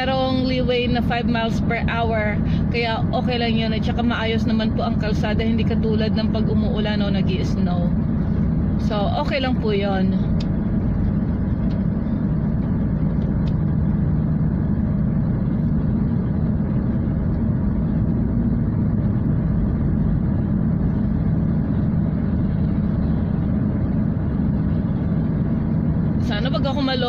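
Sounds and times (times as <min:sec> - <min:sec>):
car driving heard from inside: 0:00.0 - 0:27.0.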